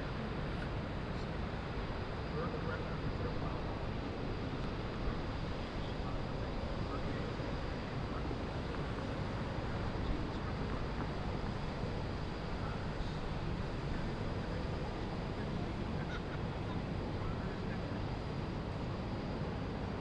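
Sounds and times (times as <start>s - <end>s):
distant traffic and boats: 0.0s - 20.0s.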